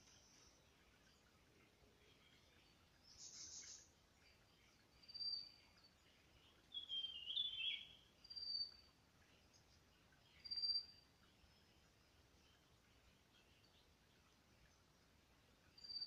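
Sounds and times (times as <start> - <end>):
songbirds calling: 0.0 - 16.0.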